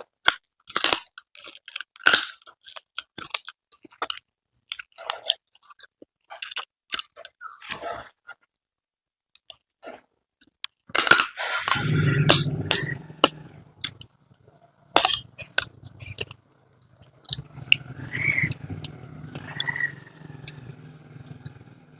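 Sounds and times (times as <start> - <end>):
chewing crisp fried food: 0.0 - 8.6, 9.2 - 21.7
loud low droning hum: 11.8 - 16.3, 17.0 - 21.9.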